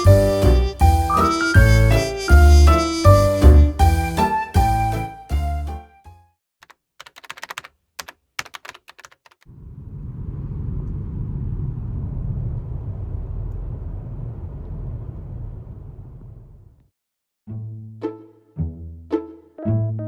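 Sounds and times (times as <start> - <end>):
keyboard typing clicks: 6.6 - 9.4
steady low rumble: 9.5 - 16.8.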